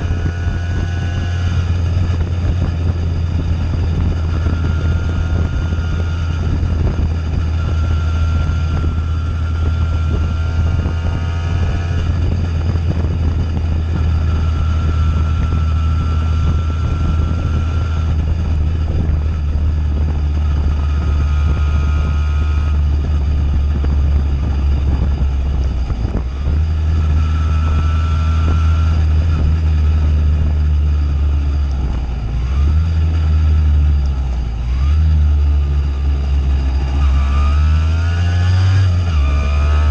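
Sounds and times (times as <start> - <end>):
two-stroke moped engine running: 0.0 - 39.9.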